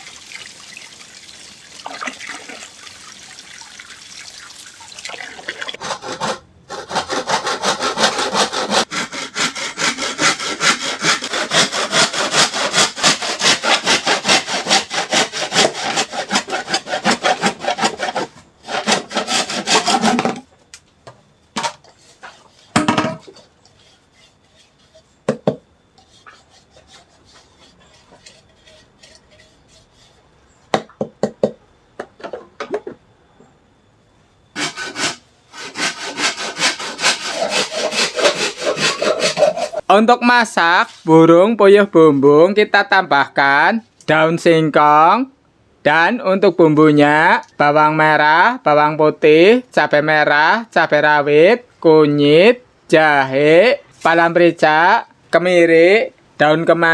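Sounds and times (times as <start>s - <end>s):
saw cutting bamboo: 5.8s - 20.4s, 21.9s - 25.2s, 26.0s - 30.3s, 34.6s - 39.8s.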